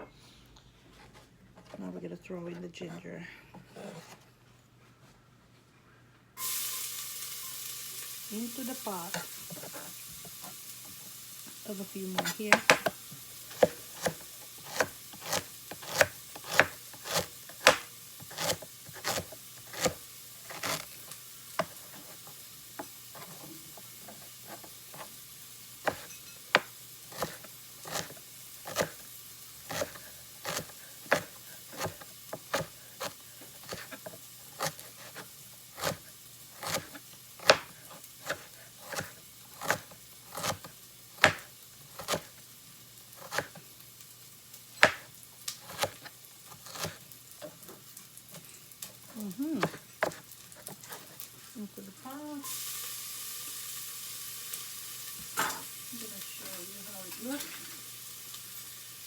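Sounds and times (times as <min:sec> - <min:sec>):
faint sizzle: 0:04.8 - 0:59.0
utensil scraping pot: 0:08.3 - 0:10.6, 0:11.7 - 0:25.2, 0:25.8 - 0:42.4, 0:44.8 - 0:47.6, 0:48.3 - 0:51.4.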